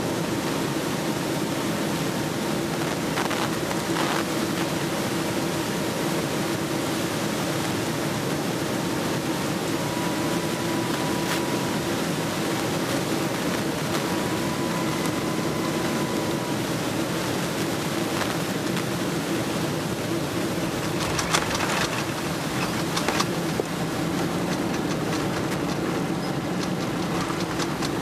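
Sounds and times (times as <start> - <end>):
faint thin whine: 0.0 - 28.0
jet airliner cabin noise: 0.0 - 28.0
bump with rattling: 20.8 - 28.0.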